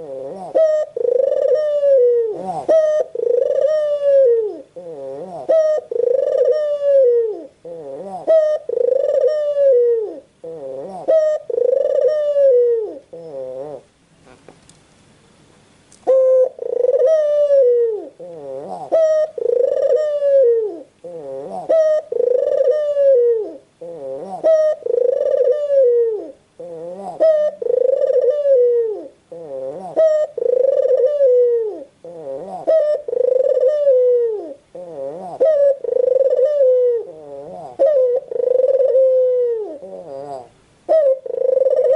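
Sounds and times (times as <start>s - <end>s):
dove cooing: 0.0s - 14.5s, 16.0s - 41.9s.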